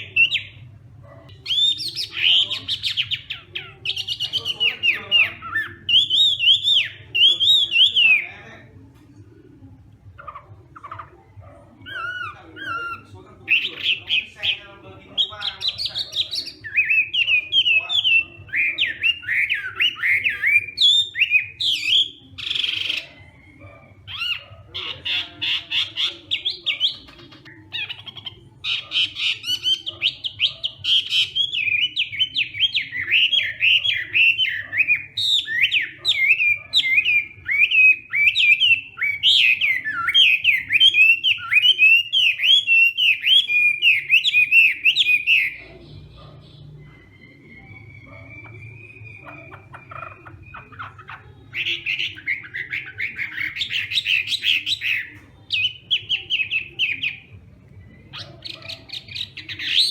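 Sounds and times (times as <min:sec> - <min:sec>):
thrush singing whistled song: 0:01.4 - 0:08.4, 0:11.9 - 0:24.5, 0:28.6 - 0:59.9.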